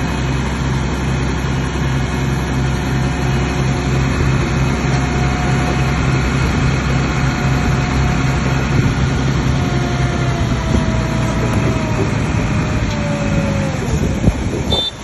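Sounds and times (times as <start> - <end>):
bulldozer diesel engine running: 0.0 - 15.0
engine whine falling in pitch: 3.0 - 15.0.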